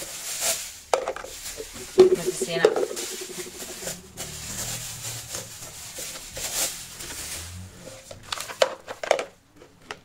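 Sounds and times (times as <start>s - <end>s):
plastic containers rustling: 0.0s - 10.0s
plastic containers knocking: 1.0s - 4.2s.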